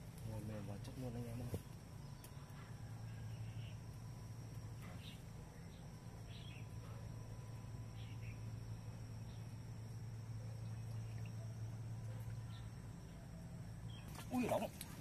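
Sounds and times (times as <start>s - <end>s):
low outdoor hum: 0.0s - 15.0s.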